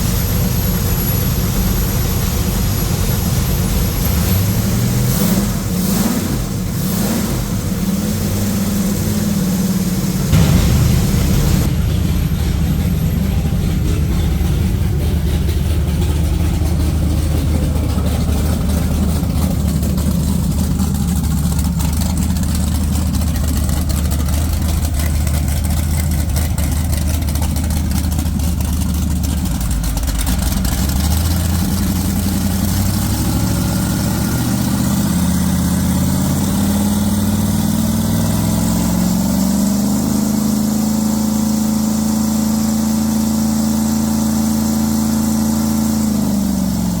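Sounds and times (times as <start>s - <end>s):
boat engine revving on dyno: 0.1s - 11.7s, 30.6s - 47.0s.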